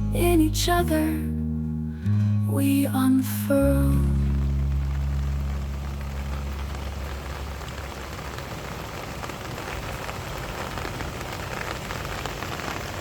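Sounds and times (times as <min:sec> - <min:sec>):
low song notes: 0:00.0 - 0:08.5
steady rain patter: 0:02.0 - 0:13.0.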